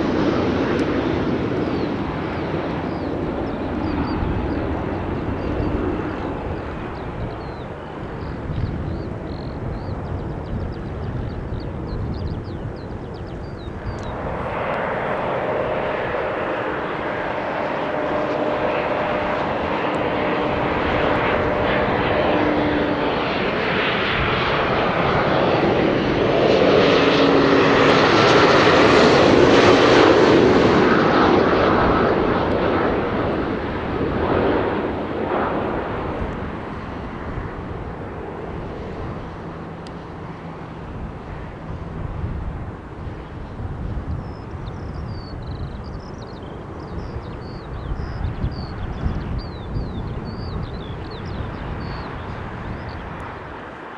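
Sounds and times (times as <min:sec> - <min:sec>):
jet airliner engine passing: 0:00.0 - 0:53.9.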